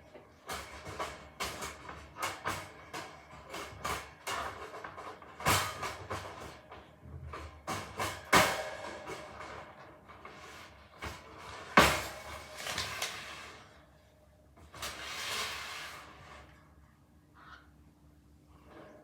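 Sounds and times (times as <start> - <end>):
knocks and clatters: 0.0 - 13.6.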